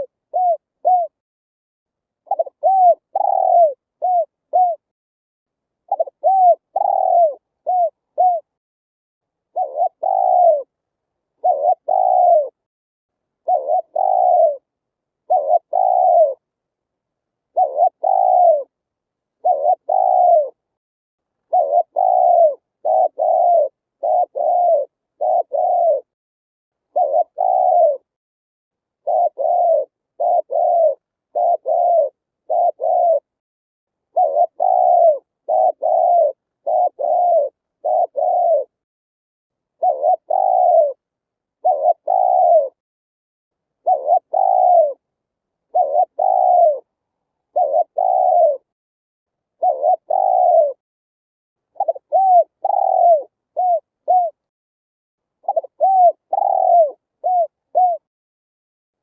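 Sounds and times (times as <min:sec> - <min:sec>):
dove cooing: 0:00.0 - 0:01.2, 0:02.2 - 0:04.9, 0:05.9 - 0:08.6, 0:09.5 - 0:10.8, 0:11.4 - 0:12.6, 0:13.4 - 0:16.5, 0:17.5 - 0:18.8, 0:19.4 - 0:20.6, 0:21.4 - 0:26.1, 0:26.9 - 0:28.1, 0:29.0 - 0:33.4, 0:34.1 - 0:38.8, 0:39.8 - 0:41.0, 0:41.6 - 0:42.8, 0:43.8 - 0:45.0, 0:45.7 - 0:46.9, 0:47.5 - 0:48.7, 0:49.6 - 0:50.8, 0:51.7 - 0:54.4, 0:55.4 - 0:58.1.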